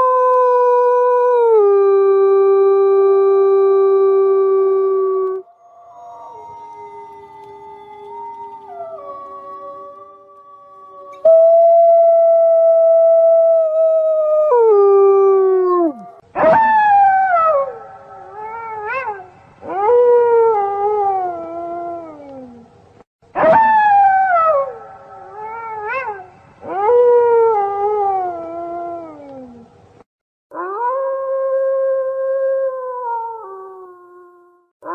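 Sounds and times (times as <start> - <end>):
wolves howling: 4.2 - 22.6.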